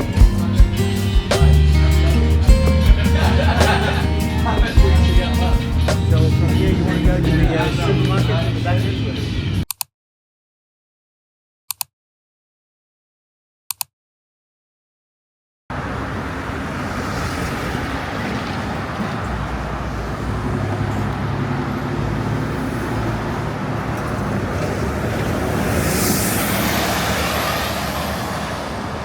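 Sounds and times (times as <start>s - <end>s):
road traffic with engine hum: 0.0s - 9.6s, 15.7s - 29.0s
thin high whine sliding down: 24.8s - 28.6s.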